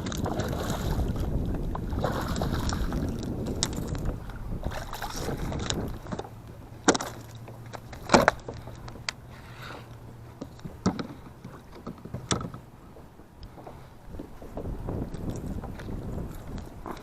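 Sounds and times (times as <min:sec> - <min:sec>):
low steady hum: 0:00.0 - 0:17.0
sharp knocks and clunks: 0:10.7 - 0:12.7.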